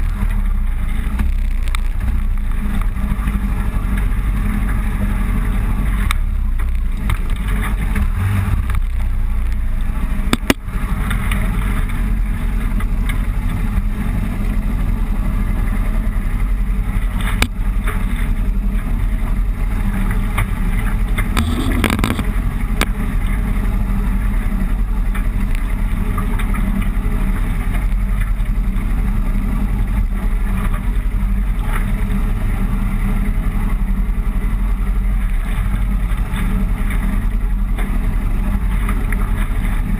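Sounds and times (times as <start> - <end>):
motorcycle engine droning: 0.0 - 39.9
sharp clicks: 21.3 - 22.9.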